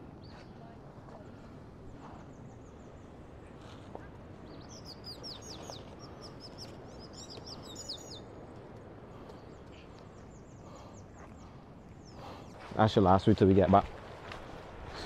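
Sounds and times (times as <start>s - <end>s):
small birds chirping: 0.0s - 13.8s
low outdoor noise: 0.0s - 15.0s.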